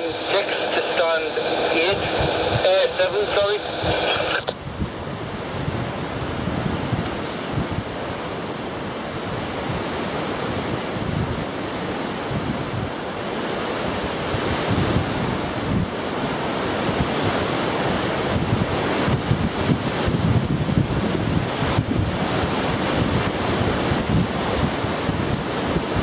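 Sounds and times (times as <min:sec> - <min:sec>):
wind buffeting microphone: 0:01.8 - 0:26.0.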